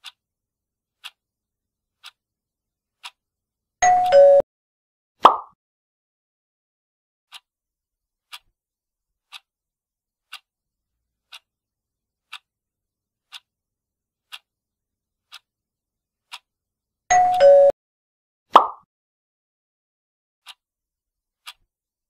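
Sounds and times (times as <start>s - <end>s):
countdown timer ticking: 3.8s - 4.4s, 17.1s - 17.7s.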